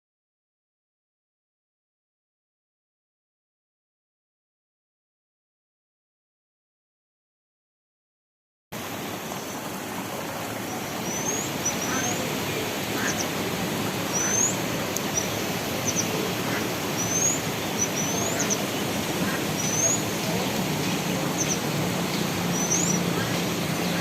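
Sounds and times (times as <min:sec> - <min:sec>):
steady rushing noise: 0:08.8 - 0:24.0.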